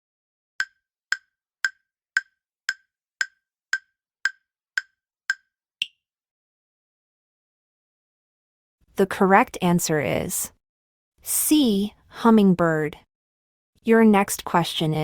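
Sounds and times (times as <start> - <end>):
countdown timer ticks: 0.6 - 6.0.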